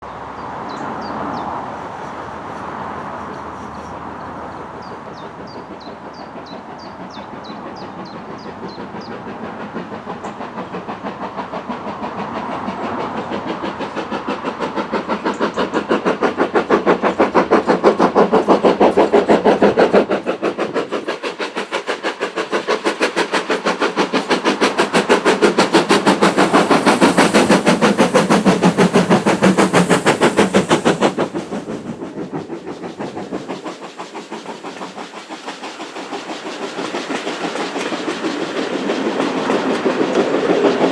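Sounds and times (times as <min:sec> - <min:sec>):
steam locomotive exhaust beating: 0:00.0 - 0:40.9
birds chirping: 0:03.7 - 0:09.3.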